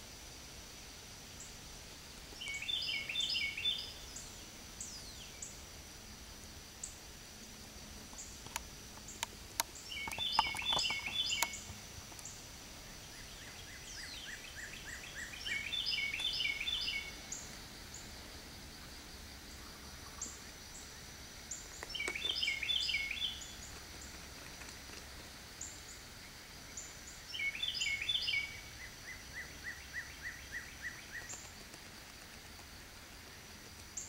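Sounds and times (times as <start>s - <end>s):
songbird singing repeated notes: 1.2s - 34.0s.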